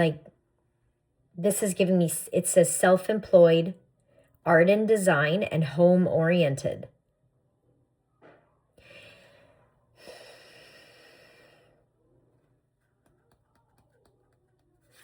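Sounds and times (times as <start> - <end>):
woman breathing: 8.8 - 12.0.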